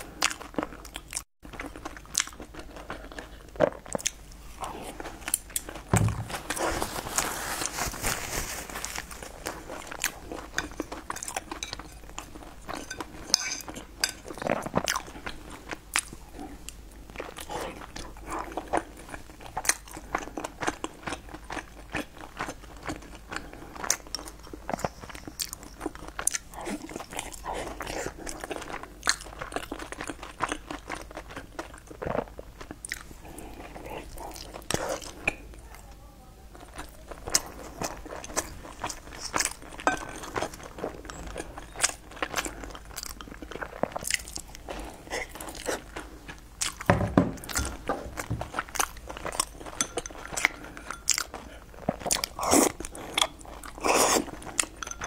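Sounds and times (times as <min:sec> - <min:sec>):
person chewing: 0:00.0 - 0:07.8, 0:08.7 - 0:35.6, 0:36.6 - 0:55.0
chopsticks tapping ceramic bowl: 0:12.8 - 0:14.2.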